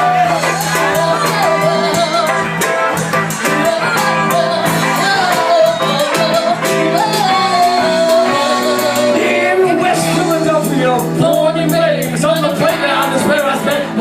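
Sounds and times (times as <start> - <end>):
live band music: 0.0 - 14.0
person singing: 0.0 - 14.0.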